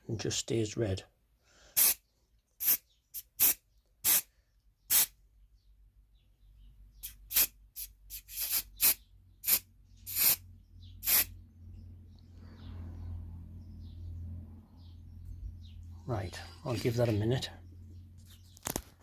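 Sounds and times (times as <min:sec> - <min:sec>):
spray can hissing bursts: 0:01.8 - 0:02.0, 0:02.6 - 0:04.3, 0:04.9 - 0:05.2, 0:07.0 - 0:10.4, 0:11.0 - 0:11.3.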